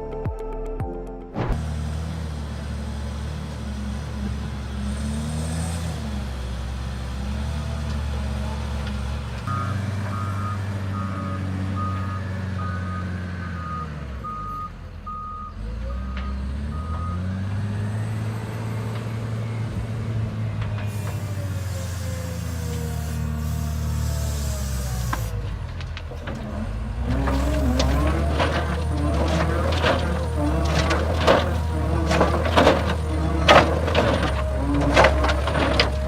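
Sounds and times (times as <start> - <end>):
diesel machine droning: 1.4 - 36.0
reversing alarm beeps: 9.5 - 17.3.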